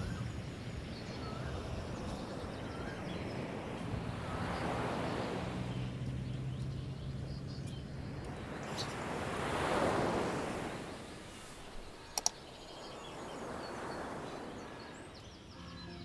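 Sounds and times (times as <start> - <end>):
sea waves washing onto shore: 0.0 - 15.2
quick clicks: 12.1 - 12.4.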